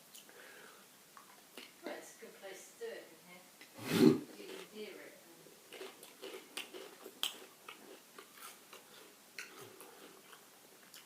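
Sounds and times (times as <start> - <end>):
crisps being crunched and chewed: 5.7 - 11.0.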